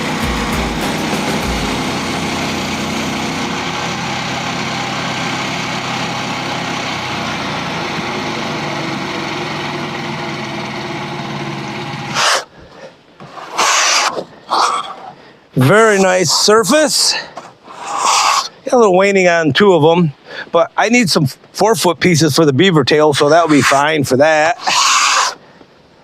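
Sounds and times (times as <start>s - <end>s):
sawmill engine running: 0.0s - 12.6s.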